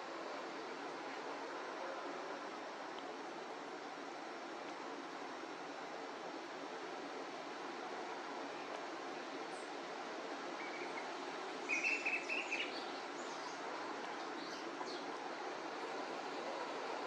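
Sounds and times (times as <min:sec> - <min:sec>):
outdoor background hiss: 0:00.0 - 0:17.0
bird chirping: 0:11.6 - 0:15.0.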